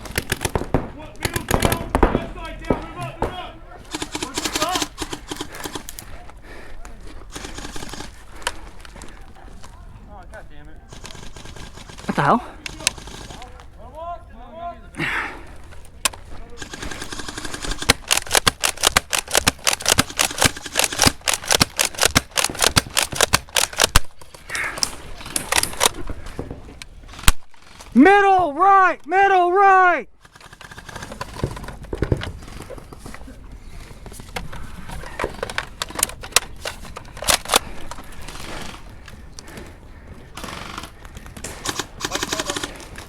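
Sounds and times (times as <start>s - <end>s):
rapid airsoft gunfire: 0.0s - 6.2s, 7.3s - 8.7s, 10.9s - 13.5s, 16.6s - 26.0s, 30.2s - 32.7s, 40.4s - 43.0s.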